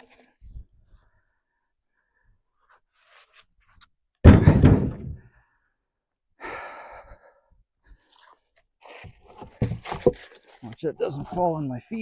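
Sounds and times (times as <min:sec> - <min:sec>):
heavy log thudding: 0:04.2 - 0:05.3.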